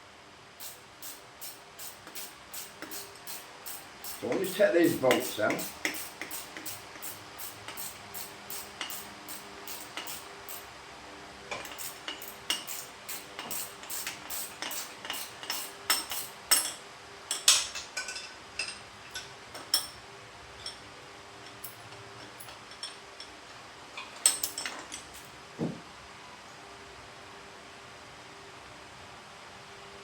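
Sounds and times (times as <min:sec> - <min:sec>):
spanner clicking on metal bolts: 0:00.6 - 0:10.7, 0:11.5 - 0:20.0, 0:21.4 - 0:23.4, 0:24.0 - 0:25.3.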